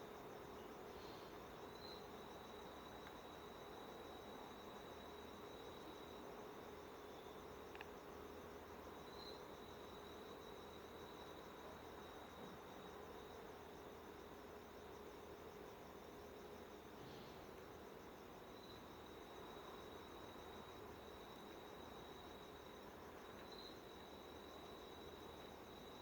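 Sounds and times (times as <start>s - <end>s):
faint click: 3.0s - 3.2s, 7.7s - 7.9s.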